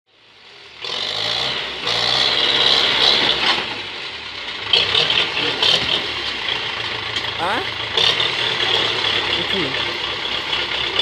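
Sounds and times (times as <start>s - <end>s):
tractor engine running: 0.1s - 11.0s.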